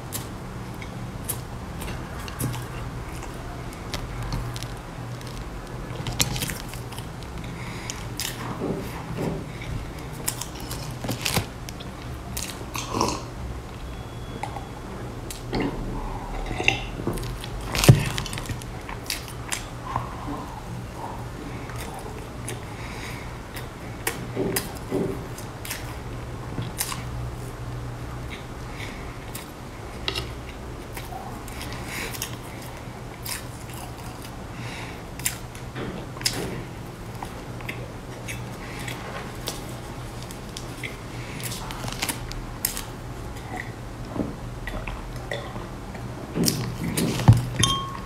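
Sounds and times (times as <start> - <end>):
chewing and biting cake: 0.0 - 14.7, 28.2 - 47.7
steady low hum: 0.0 - 48.0.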